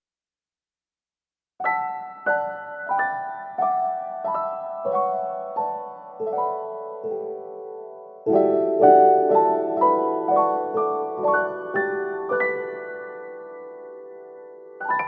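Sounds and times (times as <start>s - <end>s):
slow piano chords: 1.6s - 15.0s.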